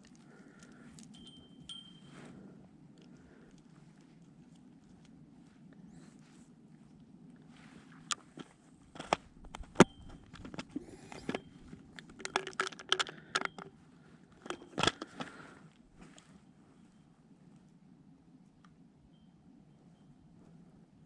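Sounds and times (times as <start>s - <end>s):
crunching and crinkling: 0.0s - 1.6s, 2.9s - 16.4s
sharp clicks and knocks: 8.1s - 13.7s, 14.4s - 15.4s.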